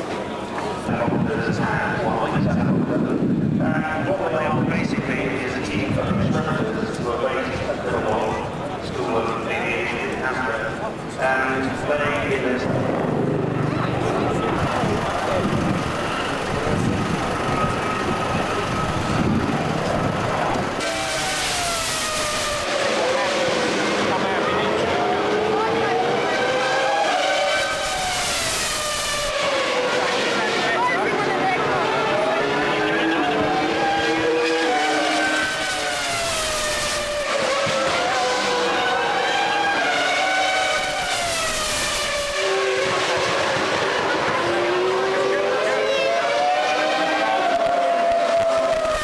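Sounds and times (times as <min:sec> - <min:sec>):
engine tones falling in pitch: 0:11.6 - 0:49.0
engine rumble with high whine: 0:12.0 - 0:45.4.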